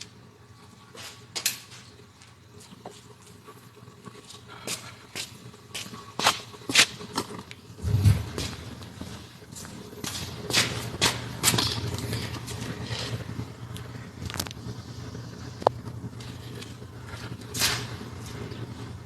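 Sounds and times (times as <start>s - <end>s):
low thump: 7.8s - 8.5s.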